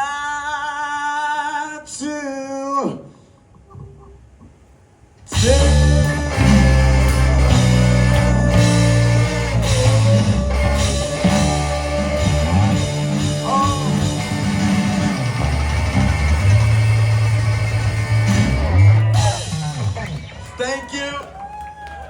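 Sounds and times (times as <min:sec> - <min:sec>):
garage rock band playing: 0:05.3 - 0:21.2
held electric guitar note: 0:05.4 - 0:20.1.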